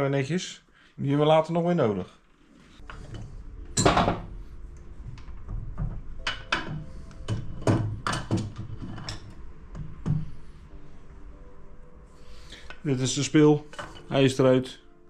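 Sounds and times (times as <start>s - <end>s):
metal knocks and clunks: 3.0s - 4.4s, 5.1s - 10.4s.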